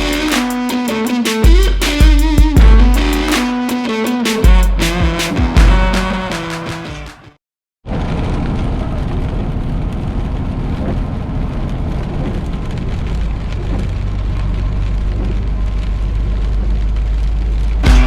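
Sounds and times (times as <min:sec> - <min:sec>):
road rushing noise: 0:07.9 - 0:18.0
truck engine rumble: 0:07.9 - 0:18.0.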